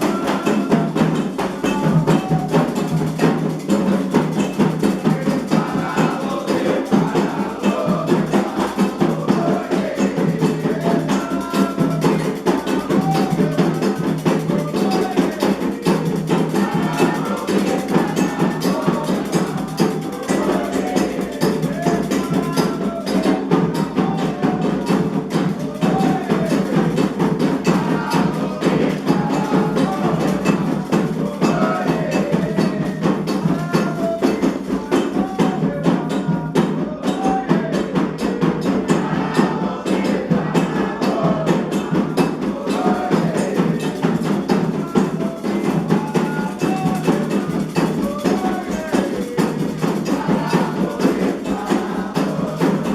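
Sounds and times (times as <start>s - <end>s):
hand drums fast rhythm: 0.0s - 52.9s
sharp struck percussion: 0.0s - 52.9s
voices singing: 0.0s - 52.9s.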